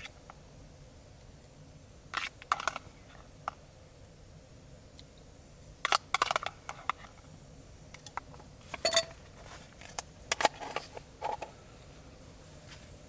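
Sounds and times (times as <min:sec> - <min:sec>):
metal cookware clinking: 0:08.8 - 0:09.2.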